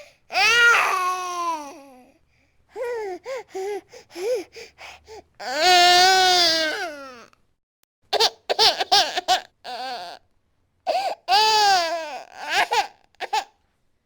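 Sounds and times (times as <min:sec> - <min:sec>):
baby crying: 0:00.0 - 0:02.0, 0:05.4 - 0:07.3, 0:08.2 - 0:10.2, 0:10.9 - 0:13.6.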